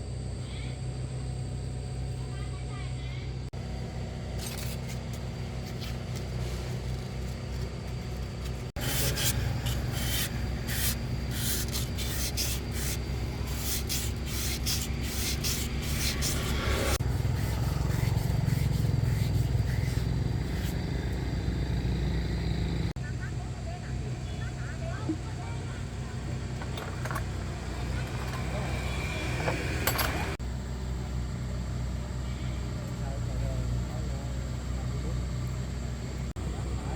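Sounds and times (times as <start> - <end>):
low mechanical hum: 0.0 - 36.9
metal scraping and clicking: 26.6 - 28.7, 29.3 - 30.4.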